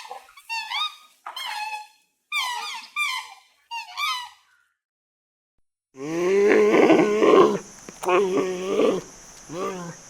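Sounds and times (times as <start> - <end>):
young animal squeaky calls: 0.0 - 4.5
low drawn-out animal call: 6.0 - 10.0.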